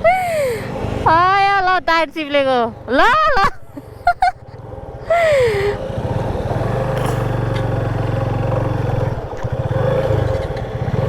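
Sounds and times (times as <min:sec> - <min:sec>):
motorcycle engine running: 0:05.8 - 0:11.0.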